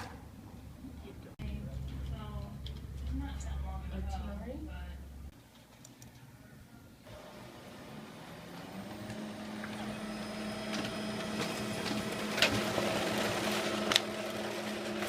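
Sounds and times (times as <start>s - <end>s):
printer mechanical hum: 7.1s - 15.0s.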